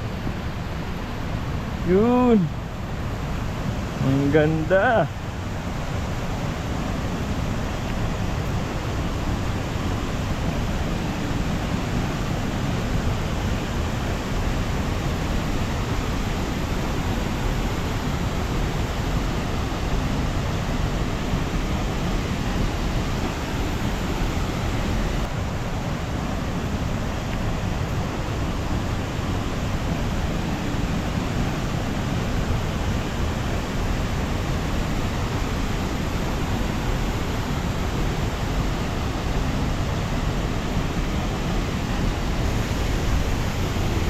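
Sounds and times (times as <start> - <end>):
waterfall rushing: 0.0 - 44.0.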